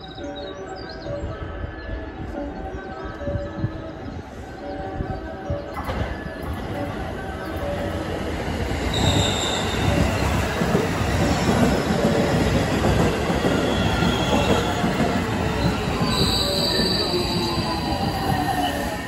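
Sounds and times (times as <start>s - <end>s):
train wheels rumbling on rails: 5.6s - 19.0s.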